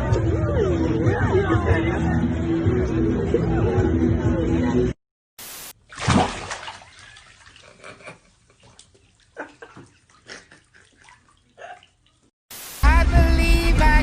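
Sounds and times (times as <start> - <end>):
water splashing and sloshing: 5.7 - 12.3.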